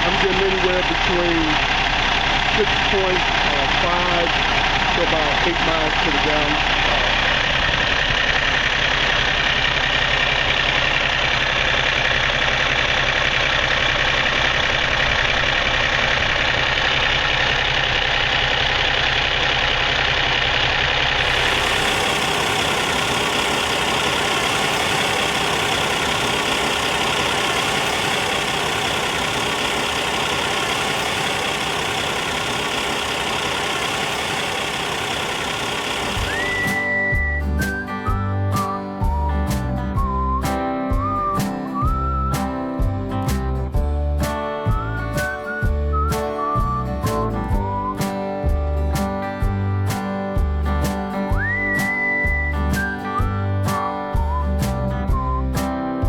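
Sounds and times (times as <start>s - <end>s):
diesel truck engine idling: 0.0s - 40.4s
hissy running sound: 21.2s - 36.9s.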